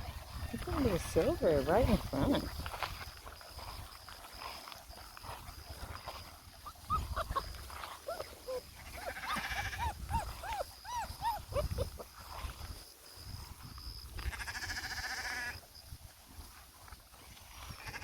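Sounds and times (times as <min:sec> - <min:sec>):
puppies yipping and whimpering: 0:05.8 - 0:12.3.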